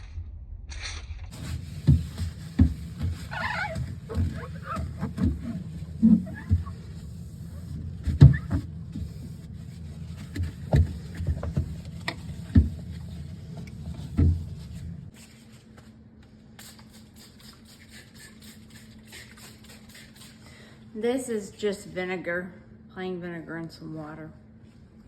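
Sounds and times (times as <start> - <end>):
items being handled and set down: 0.8 - 16.4
fridge hum: 1.3 - 21.4.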